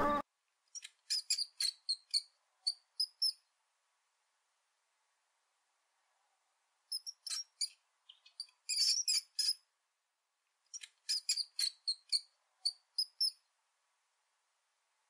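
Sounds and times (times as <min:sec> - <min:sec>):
hamster gnawing and chewing: 0:00.7 - 0:03.4, 0:06.9 - 0:09.6, 0:10.7 - 0:13.4.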